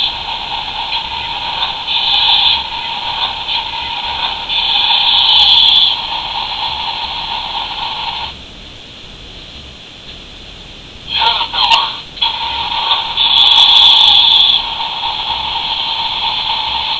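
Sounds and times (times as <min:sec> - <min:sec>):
toy excavator engine sound effect: 0:00.8 - 0:07.0, 0:11.1 - 0:16.9.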